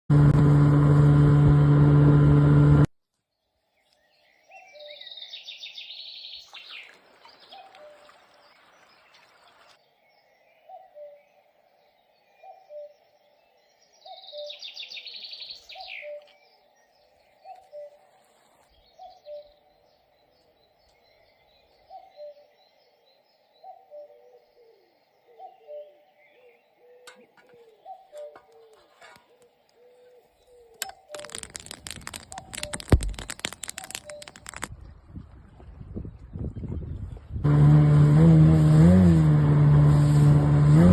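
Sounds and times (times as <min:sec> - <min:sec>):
faint bird chirps: 0:03.3 - 0:34.6
high trilling birdsong: 0:03.4 - 0:34.7.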